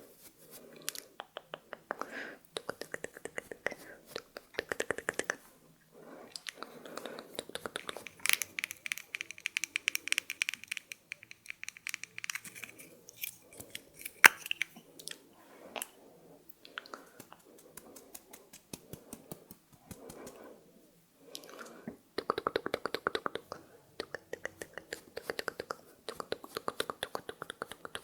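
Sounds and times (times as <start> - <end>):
sharp clicks and taps: 1.2 - 5.4, 6.4 - 14.8, 16.7 - 20.4, 22.2 - 28.0
soft rustling: 12.4 - 20.6.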